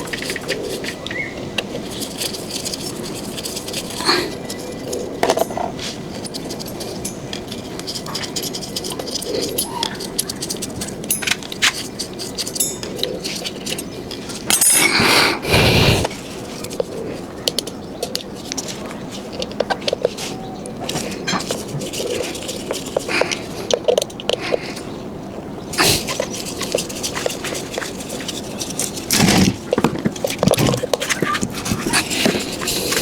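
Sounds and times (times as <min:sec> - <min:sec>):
metallic clicks and clinks: 0:01.8 - 0:15.0.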